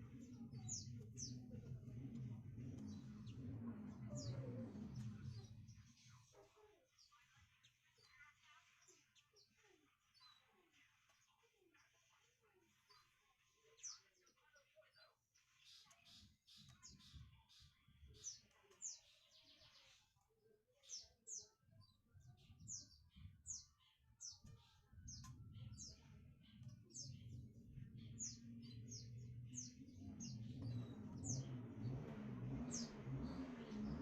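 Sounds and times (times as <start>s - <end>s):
low hum: 0.0s - 5.8s, 27.3s - 34.0s
small birds chirping faintly: 0.0s - 34.0s.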